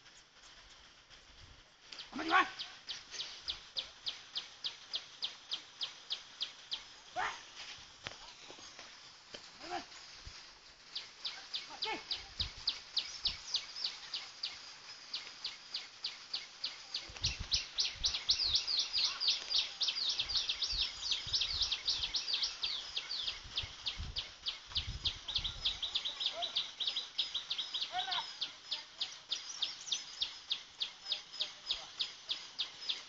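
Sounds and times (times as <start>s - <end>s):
small bird chirping: 10.9s - 33.0s.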